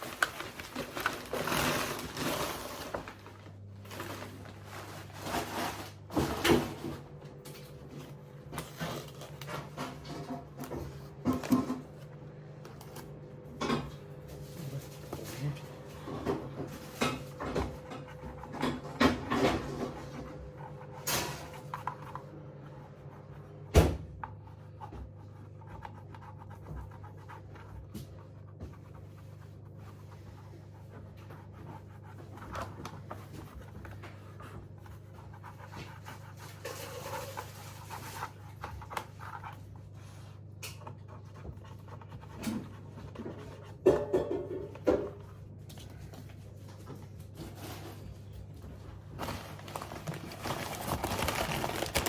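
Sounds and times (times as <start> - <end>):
paper packaging rustling: 0.0 - 6.8, 49.1 - 52.0.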